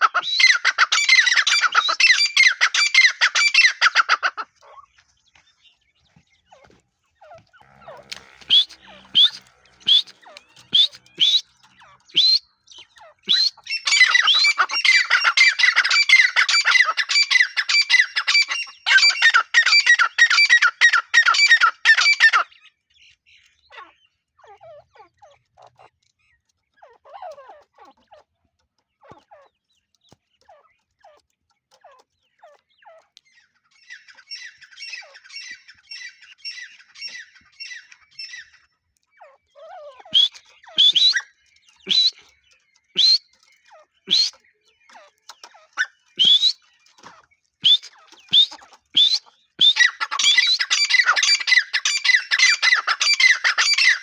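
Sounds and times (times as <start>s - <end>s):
francolin calling harsh notes: 7.6s - 12.5s.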